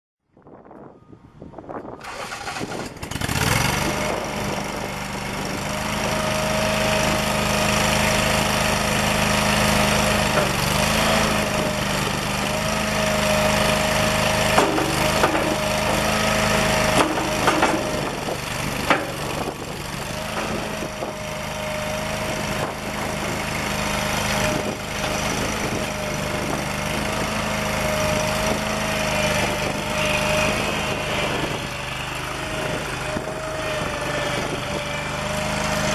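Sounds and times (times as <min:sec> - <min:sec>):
engine running: 0:01.8 - 0:35.9
machine knocks: 0:14.5 - 0:16.2, 0:16.9 - 0:18.2.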